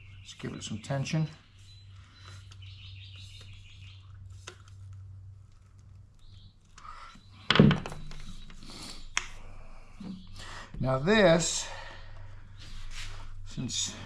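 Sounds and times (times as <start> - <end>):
bird chirping: 0.0 - 4.4, 5.9 - 11.8.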